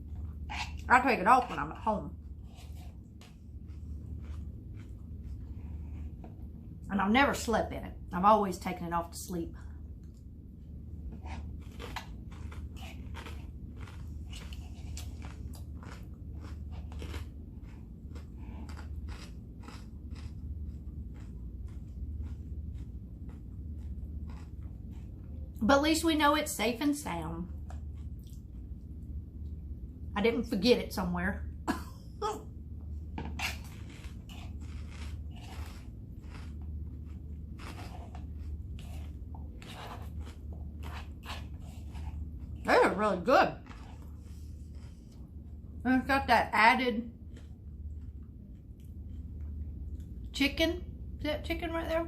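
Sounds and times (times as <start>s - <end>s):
crunchy chewing: 0.0s - 6.3s, 11.0s - 25.6s, 27.5s - 28.8s, 33.0s - 42.7s, 43.6s - 45.5s
steady low hum: 0.0s - 52.0s.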